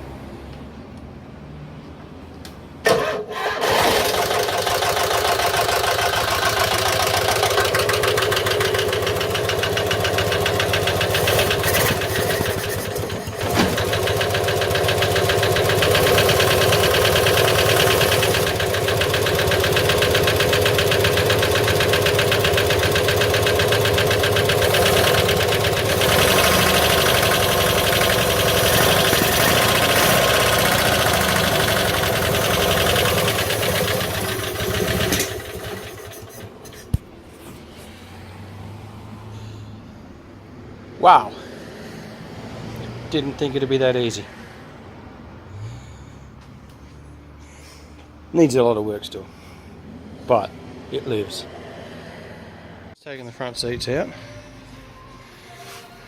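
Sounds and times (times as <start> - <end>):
car engine starting and running: 2.8 - 37.2.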